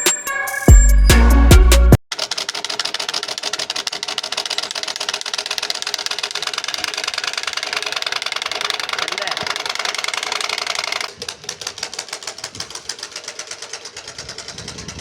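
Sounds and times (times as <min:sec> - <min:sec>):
music: 0:00.0 - 0:02.0
bicycle attachment rattling clicks: 0:02.2 - 0:15.0.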